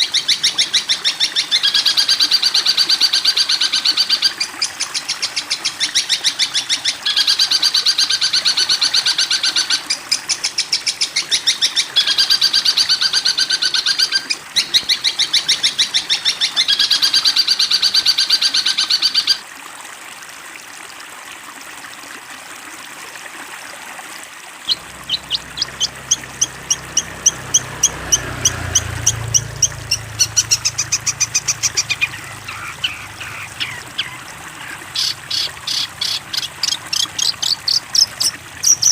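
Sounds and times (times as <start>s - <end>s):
bird chattering trills: 24.7s - 38.9s
bird chipping notes: 24.7s - 38.9s.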